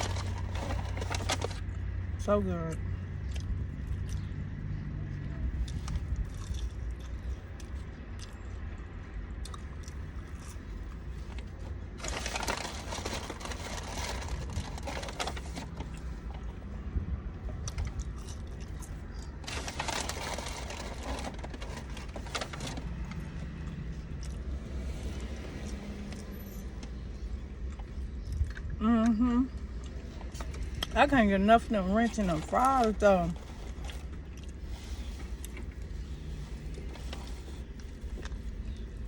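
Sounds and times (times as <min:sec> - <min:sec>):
packaging rustling: 0:00.0 - 0:01.6, 0:12.0 - 0:16.0, 0:19.4 - 0:23.1
chewing: 0:02.7 - 0:11.8, 0:17.5 - 0:19.6, 0:23.6 - 0:24.6, 0:27.6 - 0:28.8, 0:33.5 - 0:39.0.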